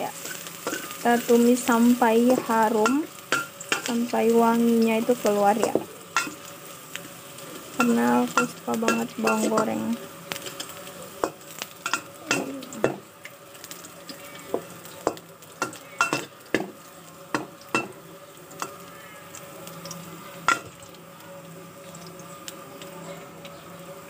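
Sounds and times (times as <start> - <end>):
shallots sizzling in oil: 0.0 - 24.0
metal spatula scraping a pot: 7.6 - 13.0.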